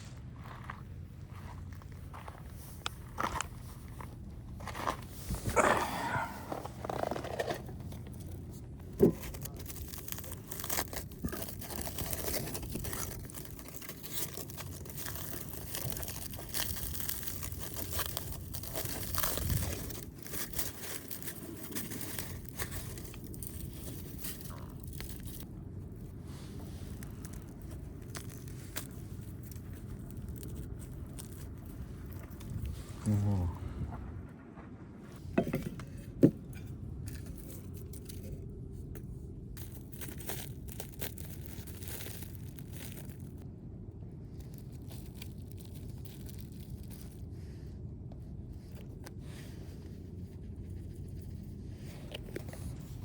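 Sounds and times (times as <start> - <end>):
crinkling and scraping of handling: 0.0 - 33.4, 34.1 - 53.0.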